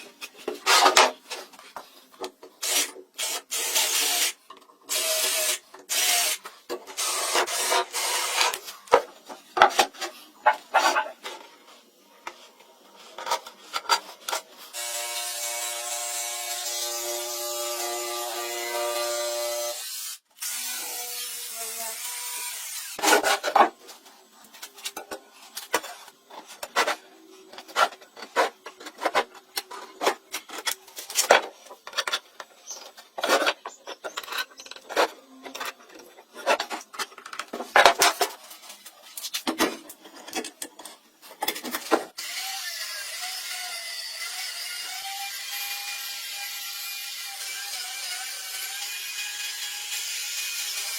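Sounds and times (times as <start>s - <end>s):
hand tools scraping and knocking wood: 0.0s - 3.0s, 6.4s - 14.6s, 23.0s - 42.1s.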